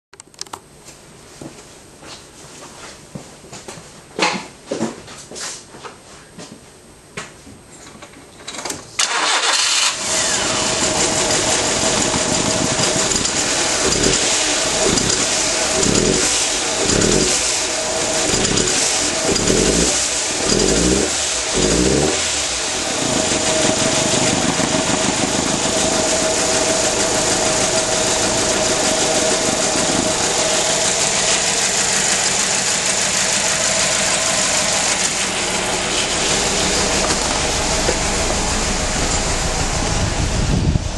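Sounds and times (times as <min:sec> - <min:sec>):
car engine misfiring: 0:09.0 - 0:40.6.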